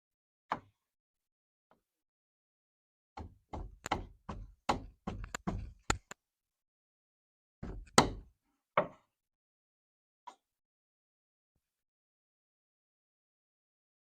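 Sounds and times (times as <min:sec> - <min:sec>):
knocks on wooden boards: 0:03.2 - 0:06.1, 0:07.6 - 0:09.0.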